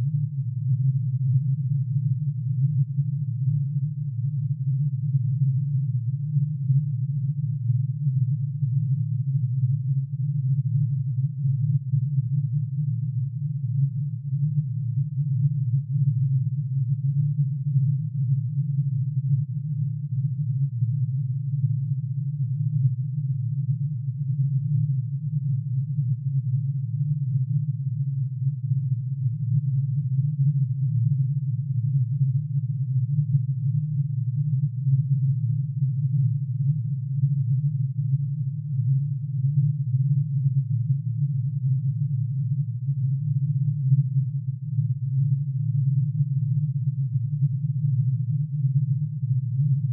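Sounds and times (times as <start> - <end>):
low dense synthesized hum: 0.0 - 49.9.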